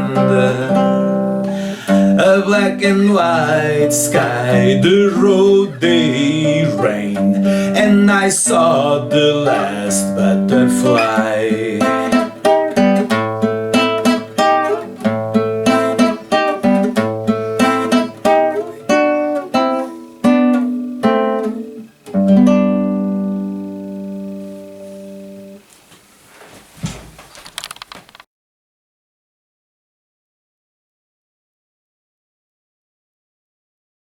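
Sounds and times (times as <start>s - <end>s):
acoustic guitar playing: 0.0s - 25.8s.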